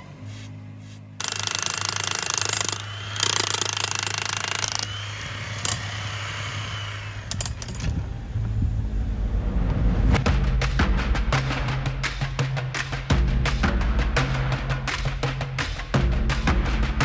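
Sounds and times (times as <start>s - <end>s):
power tool cutting concrete: 1.2s - 7.5s.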